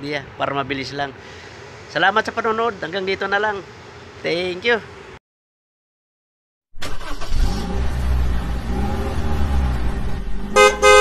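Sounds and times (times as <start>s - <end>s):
engine starter clicks: 6.8s - 7.8s
truck engine revving: 6.8s - 11.0s.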